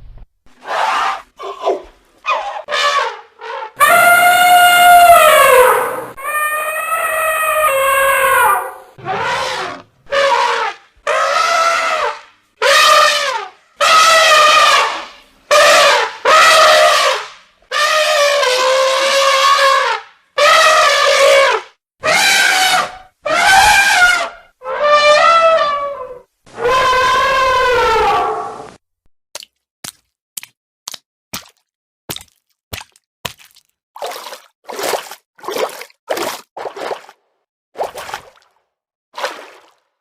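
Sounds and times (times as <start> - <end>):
brassy trumpet-like animal calls: 2.3 - 28.7.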